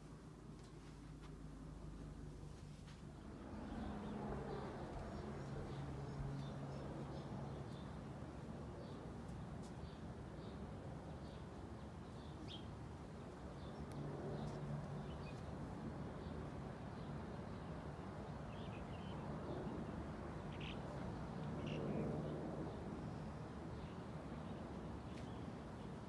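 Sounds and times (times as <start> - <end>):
birds chirping: 18.4 - 26.0.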